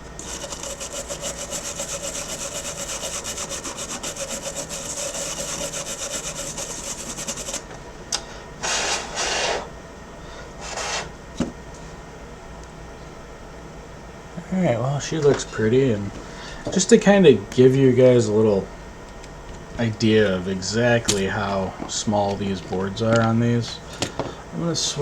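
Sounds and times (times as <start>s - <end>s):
brush scrubbing circuit board: 0.2s - 7.7s.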